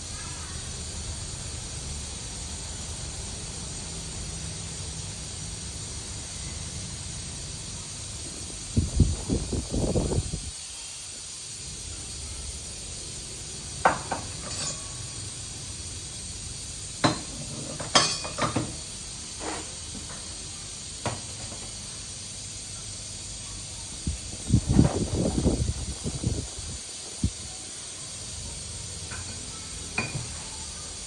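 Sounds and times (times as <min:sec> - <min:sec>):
steady hiss: 0:00.0 - 0:31.0
metal clinking: 0:13.9 - 0:15.0.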